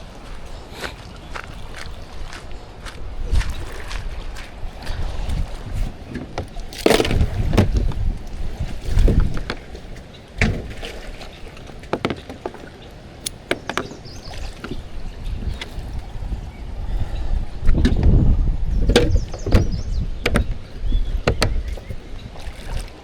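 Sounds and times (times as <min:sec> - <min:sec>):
wind rumble on microphone: 0:00.0 - 0:11.6, 0:13.7 - 0:23.0
water sounds: 0:00.0 - 0:23.0
knocks against kayak hull: 0:06.1 - 0:08.1, 0:11.8 - 0:12.6, 0:13.5 - 0:14.0, 0:18.8 - 0:22.8.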